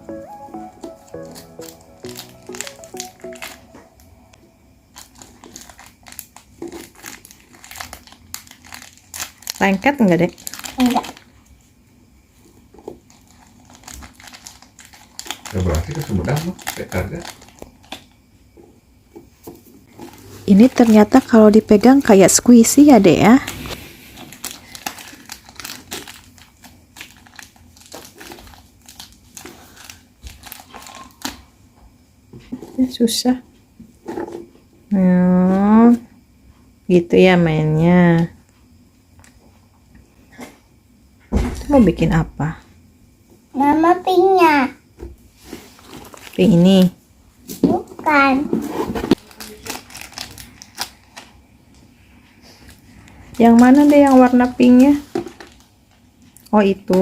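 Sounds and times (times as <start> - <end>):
light background music: 0.0 - 4.5
plastic packaging crinkling: 0.6 - 3.7, 4.9 - 11.4, 12.9 - 18.2, 19.9 - 31.4, 45.8 - 46.8, 49.1 - 51.4, 53.4 - 56.3.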